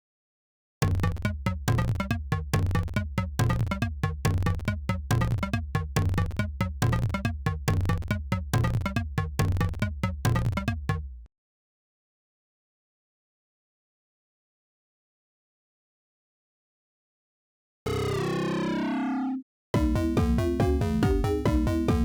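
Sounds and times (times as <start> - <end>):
electronic synthesizer music: 17.9 - 22.0.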